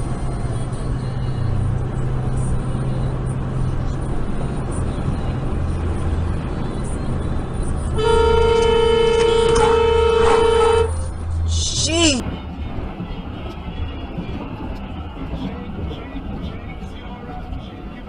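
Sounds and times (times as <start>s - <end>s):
road noise: 0.0s - 18.0s
vehicle engine hum: 0.0s - 18.0s
vehicle horn blaring: 7.9s - 11.1s.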